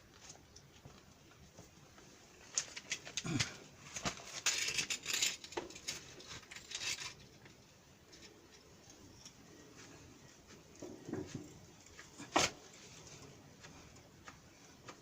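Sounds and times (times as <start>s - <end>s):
hand tools clicking and scraping metal: 2.4s - 9.6s.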